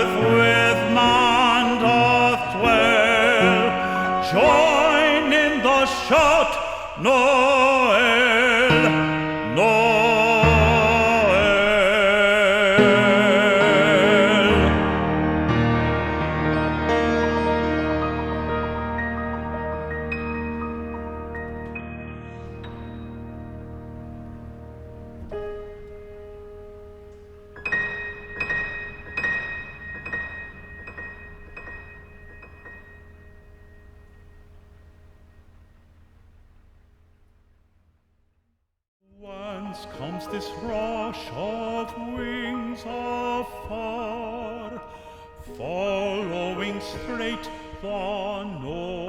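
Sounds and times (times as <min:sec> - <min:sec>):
baritone voice singing with vibrato: 0:00.0 - 0:18.9, 0:39.1 - 0:49.0
piano accompaniment: 0:00.0 - 0:37.2, 0:39.2 - 0:49.0
high bell-like piano notes: 0:15.5 - 0:36.5.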